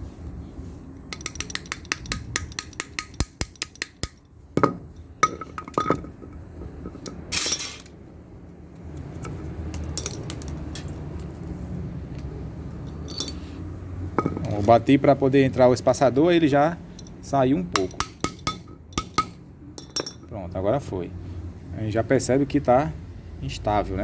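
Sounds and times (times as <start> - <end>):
metal tapping on metal: 1.1 - 7.3, 17.7 - 20.3.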